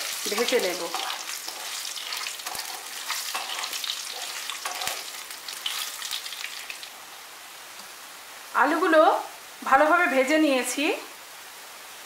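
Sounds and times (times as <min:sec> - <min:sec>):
potatoes sizzling in oil: 0:00.0 - 0:08.0.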